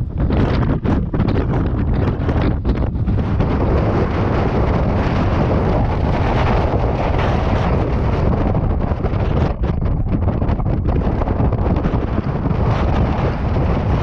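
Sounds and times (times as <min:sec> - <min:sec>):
blizzard wind buffeting microphone: 0:00.0 - 0:14.0.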